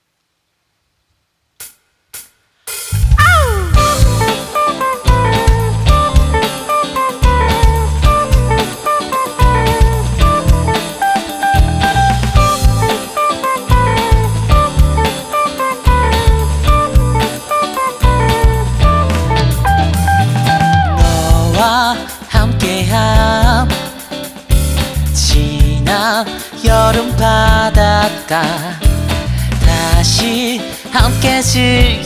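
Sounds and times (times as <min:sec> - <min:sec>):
drum kit beat: 0:01.6 - 0:32.0
bass: 0:02.9 - 0:32.0
electric guitar riff: 0:02.9 - 0:32.0.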